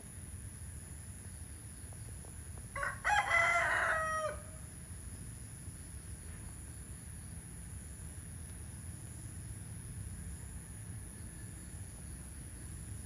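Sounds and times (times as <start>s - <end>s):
rooster crowing: 2.8s - 4.6s.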